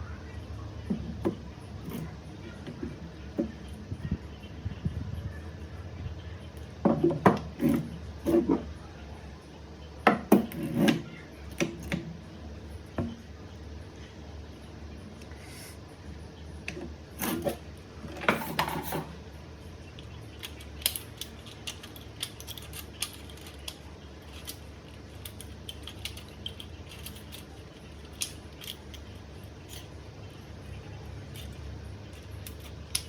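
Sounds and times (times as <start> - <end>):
low steady hum: 0.0 - 33.0
small hard parts clicking: 19.8 - 33.0.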